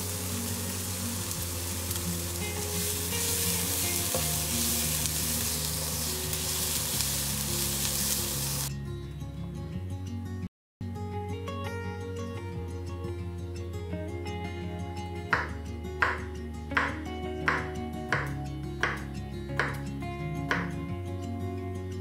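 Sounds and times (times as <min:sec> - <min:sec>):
food sizzling in a frying pan: 0:00.0 - 0:08.7
spatula stirring in a pan: 0:00.1 - 0:08.6.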